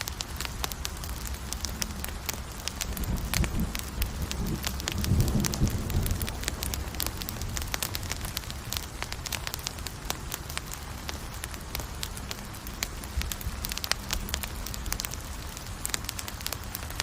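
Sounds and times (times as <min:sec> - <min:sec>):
rush of flames: 0:00.0 - 0:17.0
wood crackling and popping: 0:00.0 - 0:17.0.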